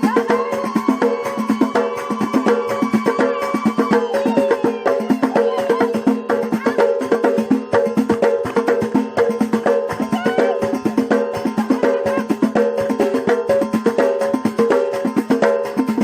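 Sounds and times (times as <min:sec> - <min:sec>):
women singing: 0:00.0 - 0:07.0, 0:10.0 - 0:12.4
drums: 0:00.0 - 0:16.0
metal percussion struck with sticks: 0:05.4 - 0:16.0.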